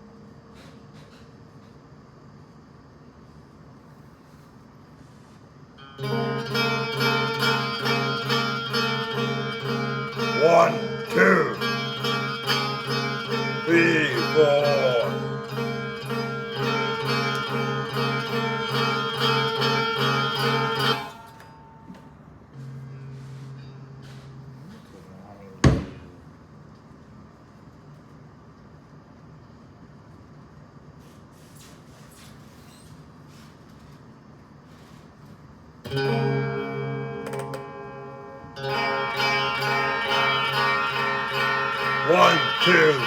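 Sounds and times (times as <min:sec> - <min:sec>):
guitar strumming a chord: 0:06.0 - 0:21.0, 0:35.9 - 0:43.0.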